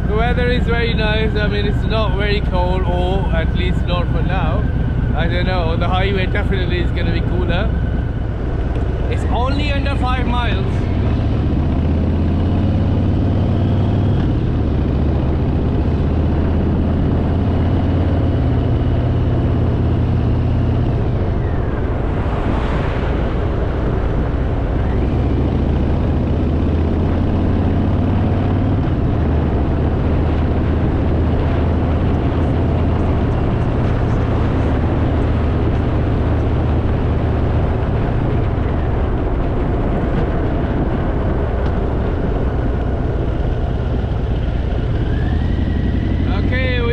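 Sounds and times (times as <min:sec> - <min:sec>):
motorcycle engine running: 0:00.0 - 0:22.1, 0:23.8 - 0:46.9
road and wind rush: 0:00.0 - 0:46.9
brief whoosh: 0:21.0 - 0:25.5.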